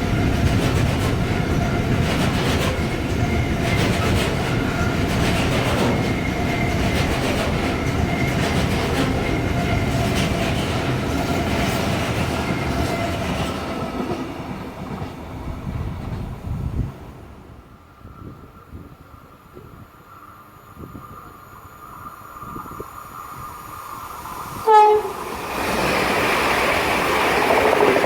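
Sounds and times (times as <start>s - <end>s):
wheels clicking over rail joints: 0.0s - 15.2s, 24.7s - 28.0s
train passing at speed: 0.0s - 28.0s.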